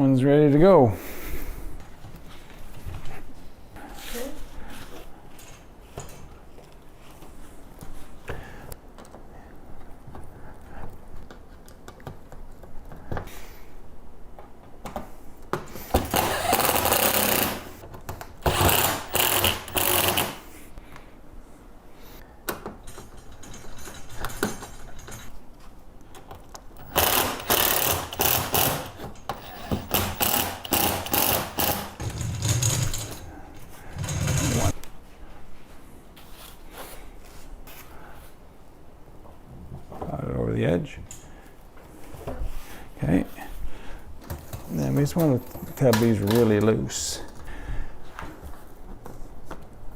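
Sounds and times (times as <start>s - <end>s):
power drill bursts: 15.9s - 17.8s, 18.4s - 20.5s, 26.8s - 32.1s
handling noise: 26.8s - 34.8s.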